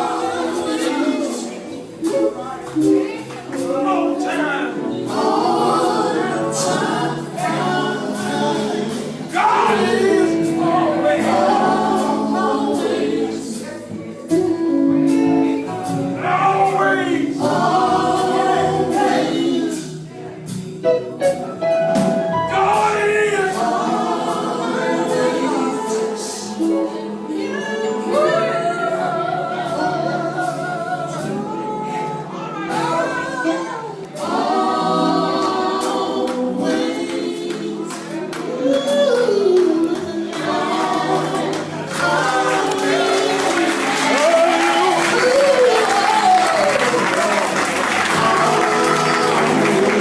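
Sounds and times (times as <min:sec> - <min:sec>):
gospel group singing in harmony: 0:00.0 - 0:50.0
instrumental accompaniment: 0:00.0 - 0:50.0.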